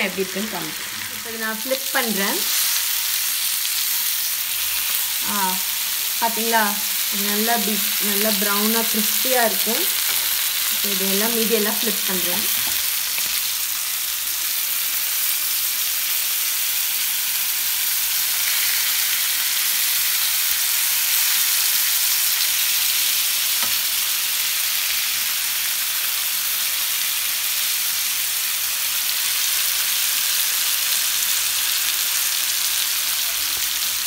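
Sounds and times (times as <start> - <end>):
chicken sizzling in oil: 0.0 - 34.0.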